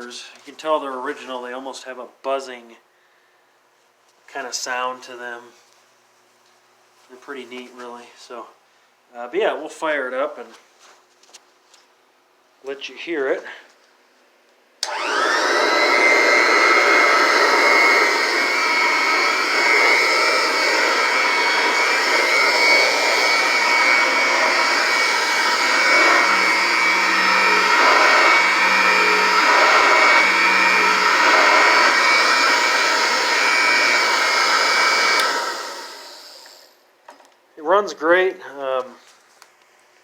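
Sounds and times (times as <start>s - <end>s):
vacuum cleaner motor whine: 14.8s - 36.7s.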